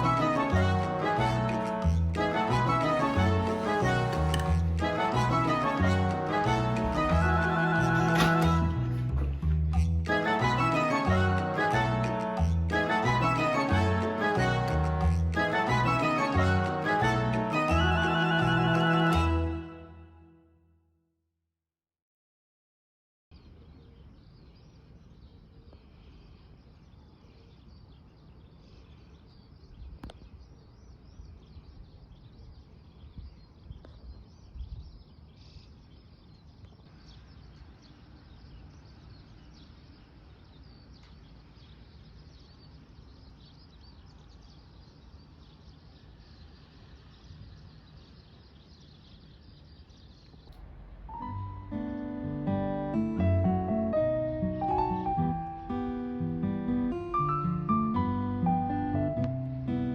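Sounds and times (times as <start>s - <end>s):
low rumble: 50.4s - 53.5s.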